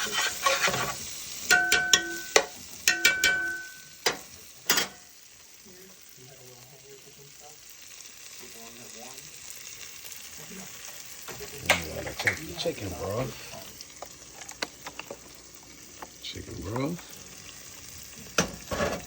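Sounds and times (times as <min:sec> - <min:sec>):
metal utensil clanking on pan: 0:00.0 - 0:05.1, 0:11.3 - 0:12.8, 0:18.3 - 0:19.0
spices sizzling: 0:00.0 - 0:19.0.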